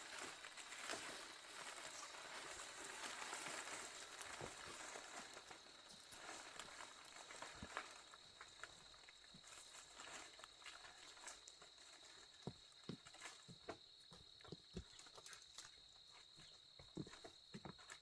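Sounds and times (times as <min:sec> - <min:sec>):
faint knocks and taps: 0:12.5 - 0:15.3.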